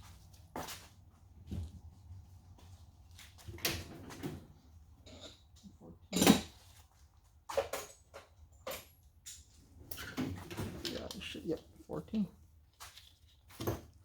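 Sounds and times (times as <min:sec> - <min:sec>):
metal tools clinking: 0:05.0 - 0:06.6.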